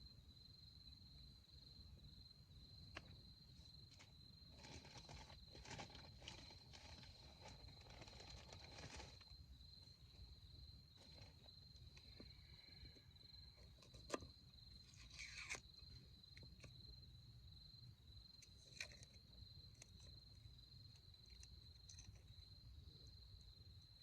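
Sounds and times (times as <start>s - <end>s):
light crackles: 3.8s - 9.4s.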